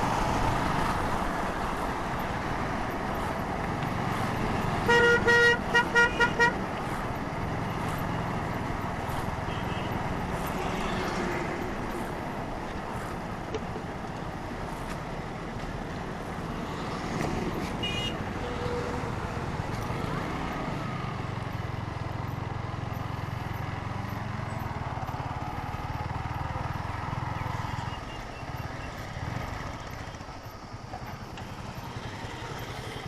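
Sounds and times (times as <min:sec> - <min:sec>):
road and engine noise: 0:00.0 - 0:33.0
higher-pitched horn: 0:04.8 - 0:06.6
vehicle horn honking: 0:04.8 - 0:06.6, 0:09.5 - 0:10.0, 0:17.8 - 0:19.0.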